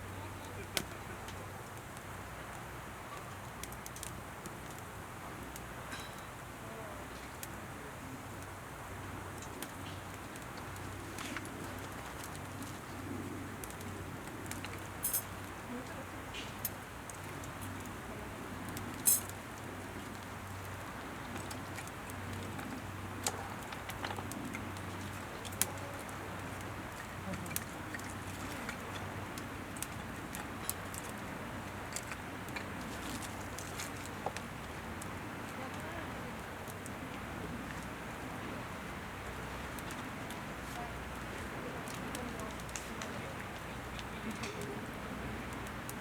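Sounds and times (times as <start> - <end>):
campfire hissing: 0.0 - 46.0
fire crackles: 0.0 - 46.0
sharp fire snaps: 3.4 - 4.9, 18.7 - 35.9.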